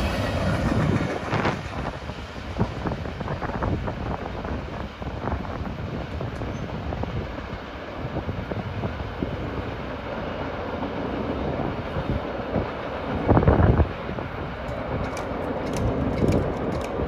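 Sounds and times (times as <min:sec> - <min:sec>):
train wheels rumbling over rails: 0:00.0 - 0:17.0.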